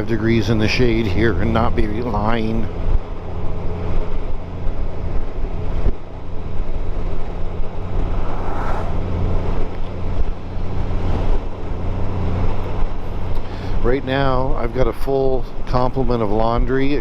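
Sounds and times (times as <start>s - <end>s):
motorcycle engine cruising: 0.7s - 14.5s
wind noise: 4.1s - 12.4s.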